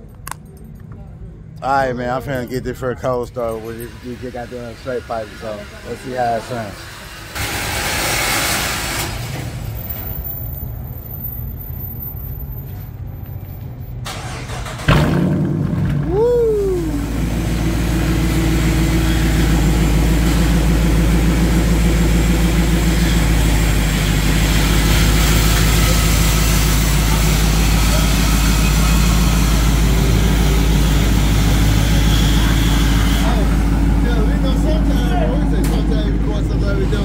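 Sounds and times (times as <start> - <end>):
car engine starting and idling: 12.5 - 37.0.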